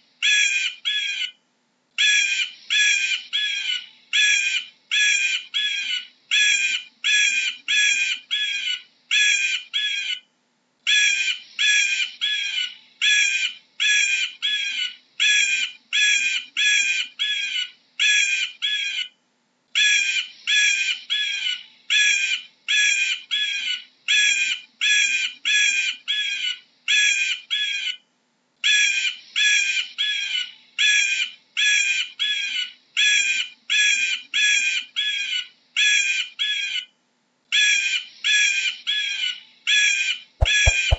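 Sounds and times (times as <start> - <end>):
eagle piping calls: 40.4 - 40.9.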